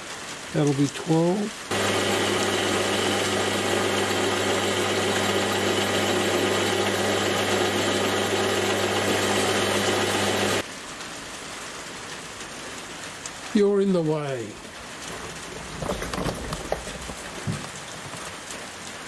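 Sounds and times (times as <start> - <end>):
faint steady hiss: 0.0 - 1.7
metal lathe running: 1.7 - 10.6.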